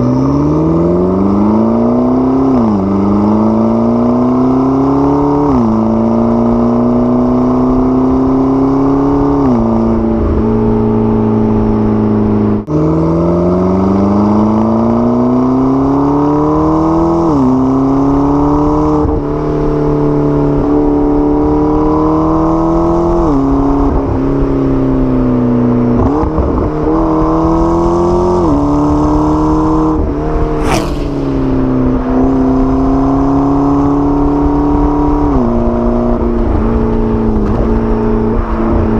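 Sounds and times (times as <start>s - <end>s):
car engine revving through gears: 0.0s - 24.2s, 25.7s - 38.9s
short sharp noise: 30.5s - 32.0s.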